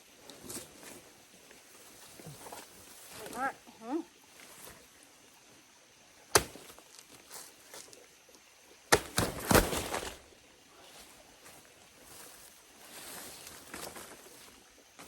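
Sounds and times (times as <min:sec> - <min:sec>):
blade chopping plant trunk: 0:06.3 - 0:06.8, 0:08.9 - 0:10.2.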